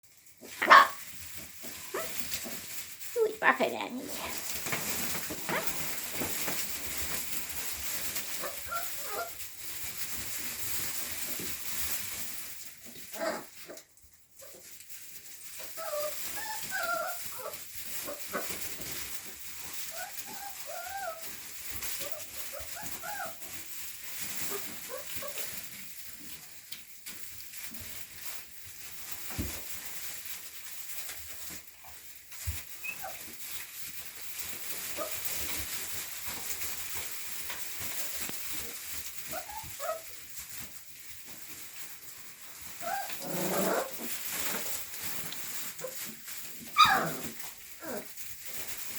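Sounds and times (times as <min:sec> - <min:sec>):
puppies whimpering: 0:15.8 - 0:17.6.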